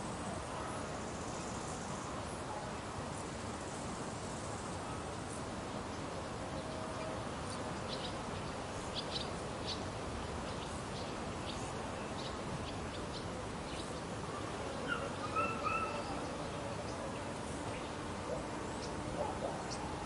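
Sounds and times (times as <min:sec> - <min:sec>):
steady background hiss: 0:00.0 - 0:20.0
loud pitched bird call: 0:14.8 - 0:16.3.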